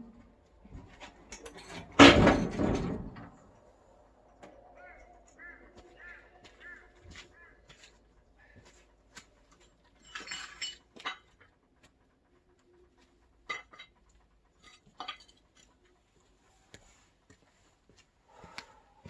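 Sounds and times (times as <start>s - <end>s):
hard objects clinking: 9.6s - 11.4s.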